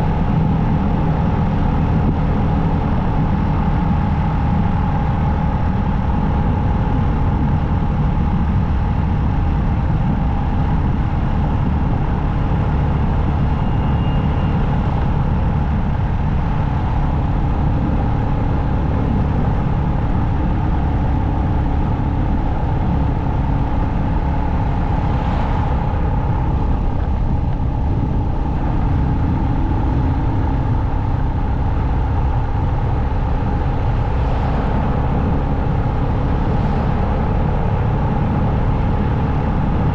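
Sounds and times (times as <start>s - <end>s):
wind and road noise: 0.0s - 39.9s
rush of higher noise: 9.7s - 39.9s.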